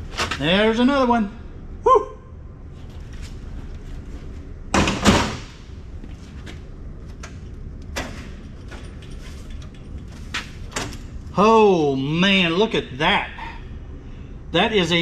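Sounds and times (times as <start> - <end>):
knocks of board on metal rack: 4.7 - 5.6.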